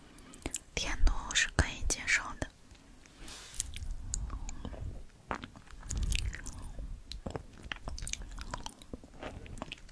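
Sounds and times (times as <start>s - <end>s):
chewing and biting: 3.5s - 9.9s.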